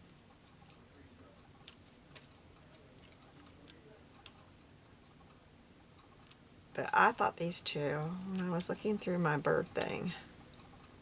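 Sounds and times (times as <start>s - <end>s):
faint clicks and taps of paper: 1.6s - 4.5s.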